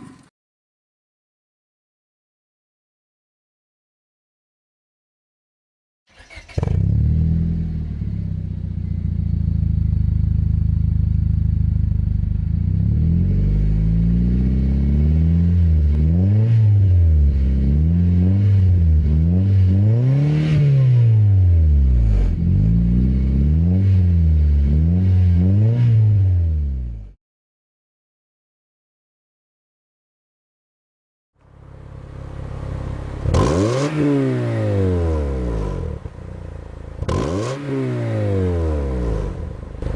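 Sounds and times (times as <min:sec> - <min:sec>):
car engine starting and revving: 0:06.1 - 0:27.2, 0:31.5 - 0:39.9.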